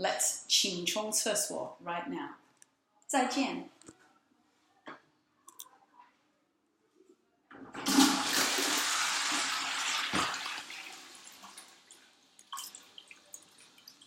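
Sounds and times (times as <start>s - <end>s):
toilet flushing: 7.7s - 14.0s
water trickling and dripping: 11.2s - 14.0s.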